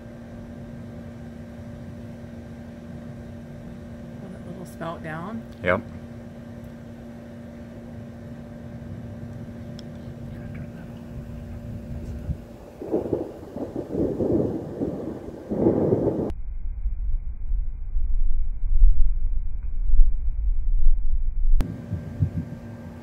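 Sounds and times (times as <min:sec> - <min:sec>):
steady low hum: 0:00.0 - 0:23.0
thunderstorm rumbling gusts: 0:08.8 - 0:23.0.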